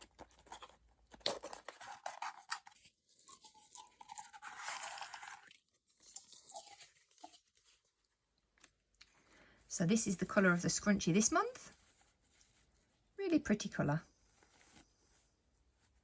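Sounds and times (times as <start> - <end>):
packaging crinkling: 0.0 - 7.8.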